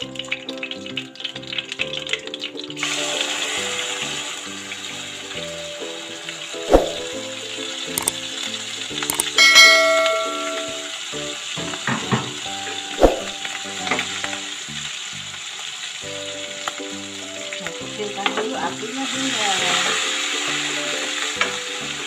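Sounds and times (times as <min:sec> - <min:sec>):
background music: 0:00.0 - 0:22.0
chili paste sizzling in oil: 0:00.0 - 0:22.0
ringing chime: 0:09.1 - 0:11.0.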